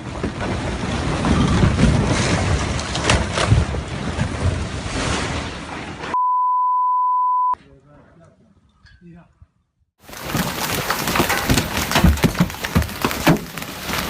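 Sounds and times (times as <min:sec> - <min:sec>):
steady high-pitched beep: 0:06.2 - 0:07.6.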